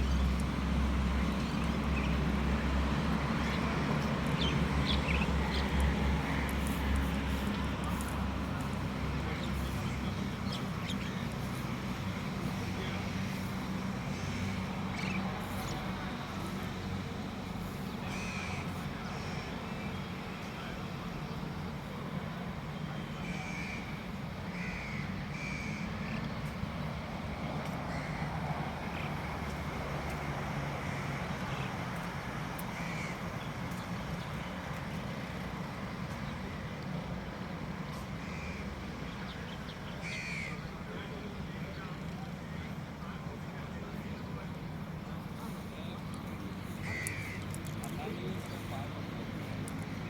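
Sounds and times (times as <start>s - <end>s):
outdoor rumble and hiss: 0.0s - 50.0s
short bird calls: 46.6s - 47.5s.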